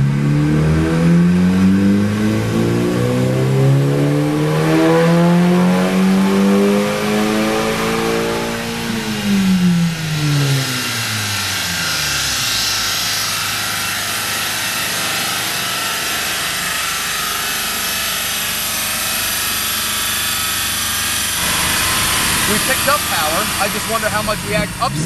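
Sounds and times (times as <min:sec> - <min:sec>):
engine revs falling: 0:00.0 - 0:20.4, 0:21.2 - 0:25.0
loud rushing noise: 0:21.4 - 0:24.9.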